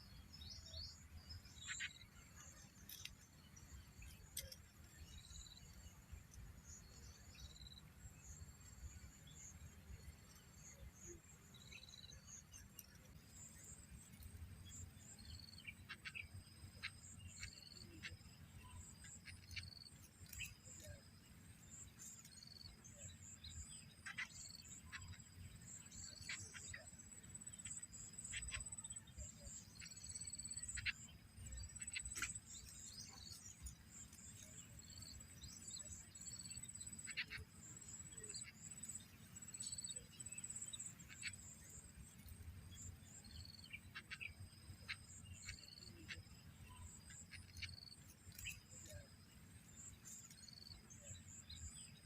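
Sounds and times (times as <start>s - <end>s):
bird chirps: 0.0s - 52.0s
insects trilling: 0.0s - 52.0s
scattered ticks: 2.7s - 3.4s, 4.0s - 4.7s, 19.0s - 21.0s, 47.1s - 49.0s.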